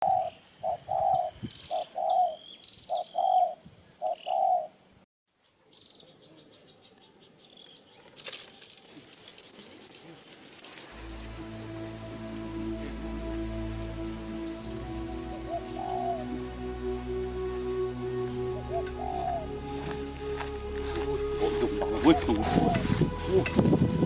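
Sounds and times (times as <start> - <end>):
dove cooing: 0.0 - 4.8, 15.4 - 16.3, 18.6 - 24.0
birds chirping: 10.9 - 24.0.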